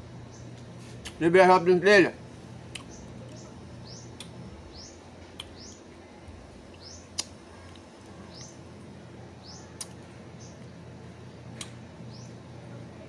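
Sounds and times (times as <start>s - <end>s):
low background hum: 0.0s - 13.0s
small bird chirping: 2.8s - 5.9s, 6.7s - 8.7s, 9.4s - 10.7s, 12.1s - 12.4s.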